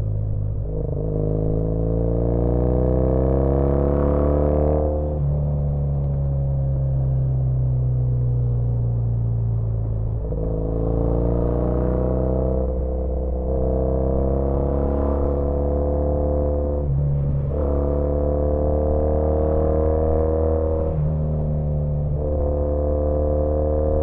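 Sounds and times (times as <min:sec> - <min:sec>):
motorcycle engine revving through gears: 0:00.0 - 0:05.3, 0:10.0 - 0:24.0.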